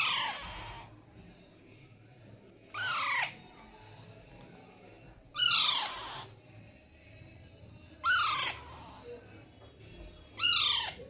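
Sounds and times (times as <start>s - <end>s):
parakeet harsh calls: 0.0s - 1.0s, 2.7s - 3.4s, 5.3s - 6.4s, 8.0s - 9.1s, 10.4s - 11.0s.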